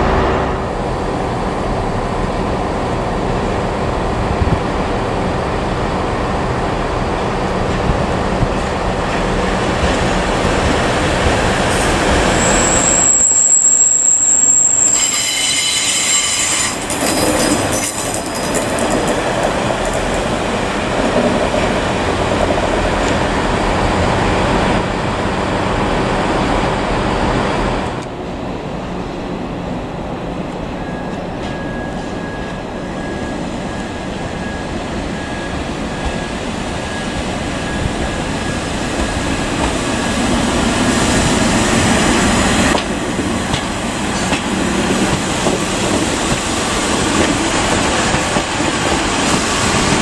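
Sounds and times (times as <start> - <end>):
train rumbling along track: 0.0 - 50.0
wheels squealing on rails: 11.4 - 19.2.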